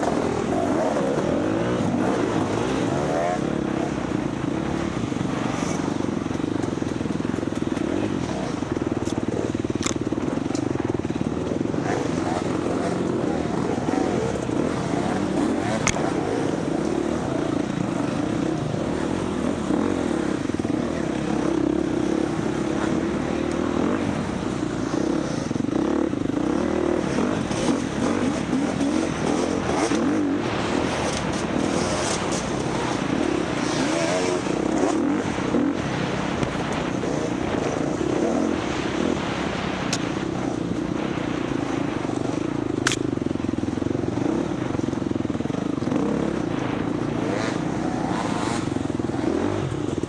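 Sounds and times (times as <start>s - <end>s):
dirt bike engine running: 0.0s - 50.0s.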